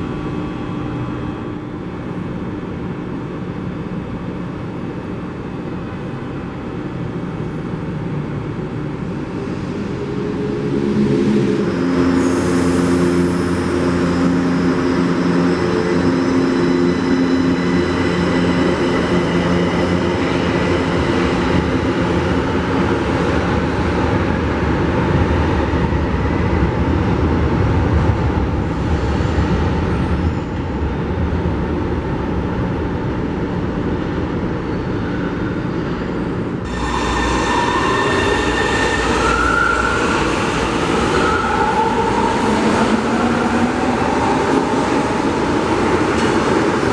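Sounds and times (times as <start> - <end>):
train wheels rumbling on rails: 8.6 - 46.9.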